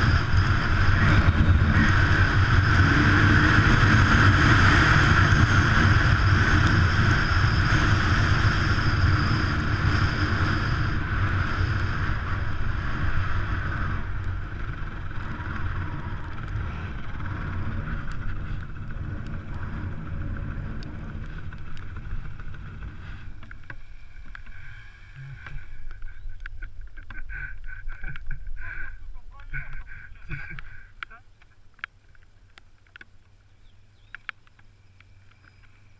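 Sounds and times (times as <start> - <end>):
motorcycle engine running: 0.0 - 28.6.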